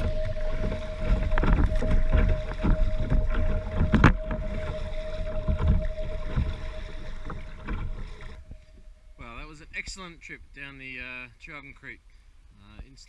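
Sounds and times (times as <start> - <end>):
rushing creek water: 0.0 - 8.6
wind buffeting microphone: 0.0 - 10.0
faint steady tone: 0.0 - 12.8.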